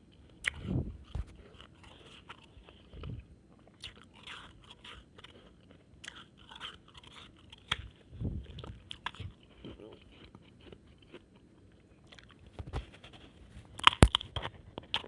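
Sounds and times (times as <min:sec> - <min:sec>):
crunching ice chewing: 0:03.6 - 0:08.0.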